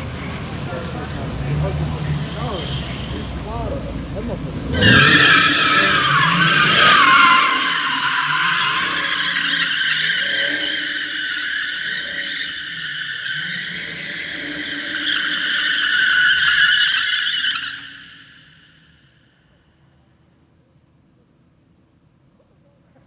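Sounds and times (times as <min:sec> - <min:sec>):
car tyres squealing: 0:00.0 - 0:19.2.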